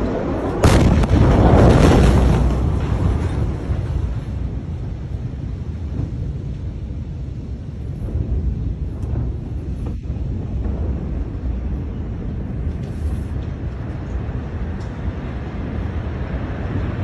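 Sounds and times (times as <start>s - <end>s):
explosion blast: 0.0s - 13.0s
explosion rumbling: 0.0s - 17.0s
wind buffeting microphone: 0.0s - 17.0s.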